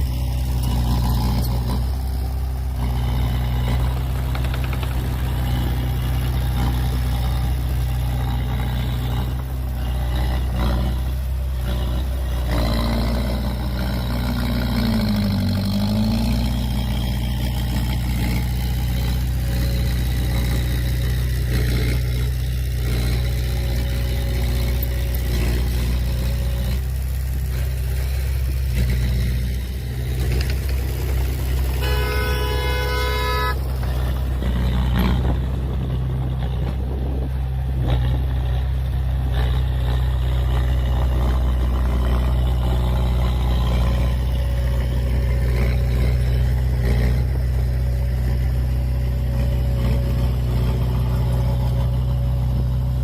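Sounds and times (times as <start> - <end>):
diesel engine running: 0.0 - 53.0
vehicle horn blast: 31.6 - 33.7.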